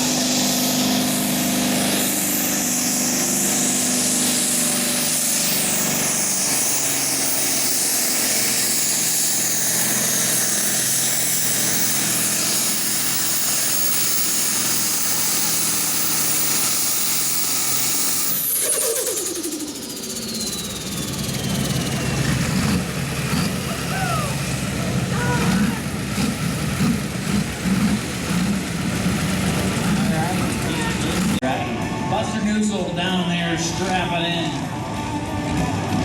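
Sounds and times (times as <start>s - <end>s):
tractor engine at full throttle: 0.0s - 36.0s
high whine falling in pitch: 18.4s - 22.8s.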